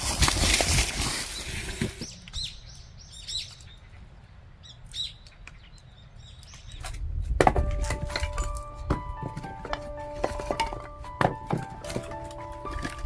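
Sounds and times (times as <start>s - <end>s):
small bird chirping: 1.3s - 7.1s
background music with held notes: 7.4s - 13.0s.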